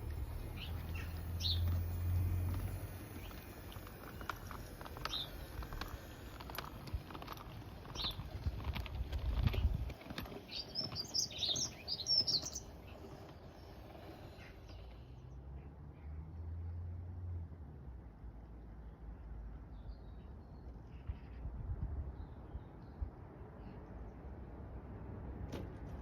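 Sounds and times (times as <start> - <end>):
small birds chirping: 0.0 - 16.2, 18.8 - 24.6
scattered clicks: 1.0 - 12.6.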